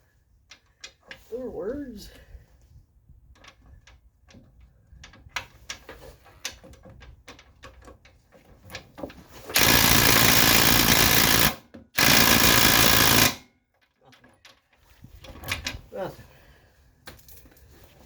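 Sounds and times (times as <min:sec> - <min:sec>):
impact wrench hammering: 0:09.5 - 0:13.4.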